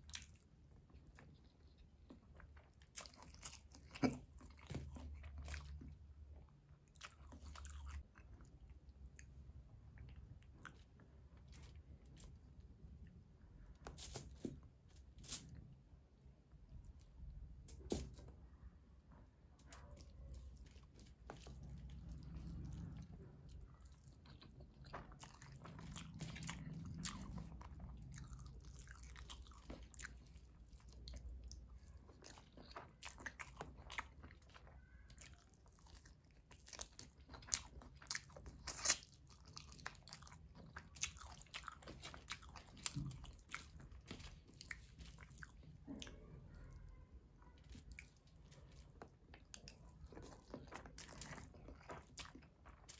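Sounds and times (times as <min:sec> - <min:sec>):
person chewing with mouth clicks: 0:19.7 - 0:46.2, 0:47.7 - 0:52.9.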